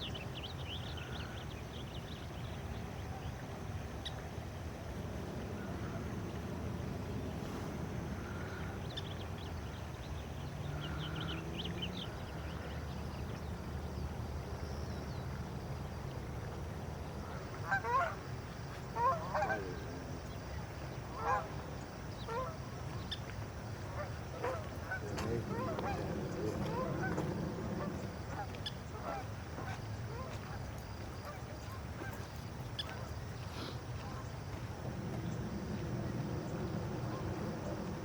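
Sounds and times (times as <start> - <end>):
low background rumble: 4.4 - 38.0
birds calling: 17.2 - 38.0.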